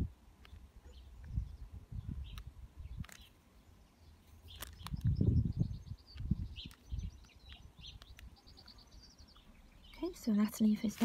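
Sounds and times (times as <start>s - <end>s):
small birds chirping: 0.0s - 11.0s
bird trill: 4.0s - 10.7s.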